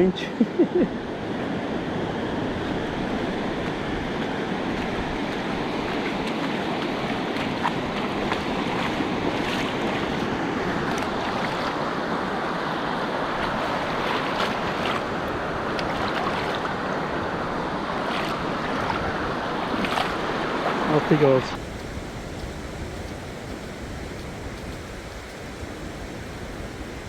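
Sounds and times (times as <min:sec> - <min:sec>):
surf washing onto shore: 0:00.9 - 0:27.0
wind buffeting microphone: 0:21.6 - 0:27.0.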